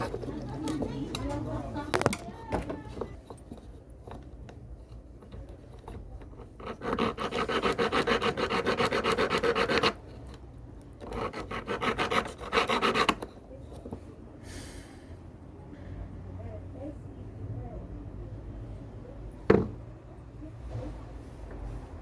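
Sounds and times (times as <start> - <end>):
hand file rasping on metal: 6.4 - 10.0, 11.0 - 13.3.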